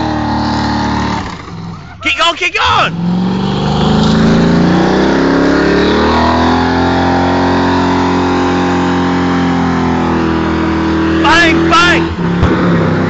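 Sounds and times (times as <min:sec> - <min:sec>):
engine revving high: 0:00.0 - 0:01.8, 0:02.8 - 0:13.0.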